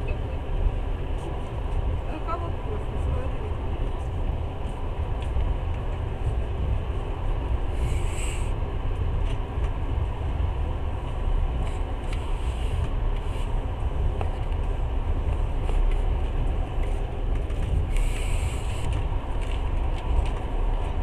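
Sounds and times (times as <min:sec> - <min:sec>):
train rumbling inside carriage: 0:00.0 - 0:21.0
brief hiss: 0:07.8 - 0:08.5.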